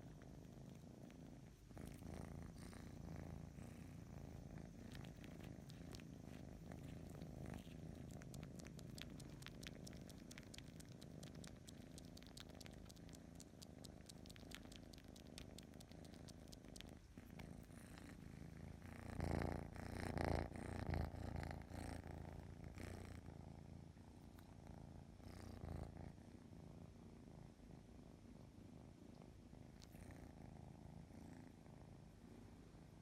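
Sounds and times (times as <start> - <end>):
cat purring: 0.0 - 33.0
small clicking sounds: 4.8 - 18.1.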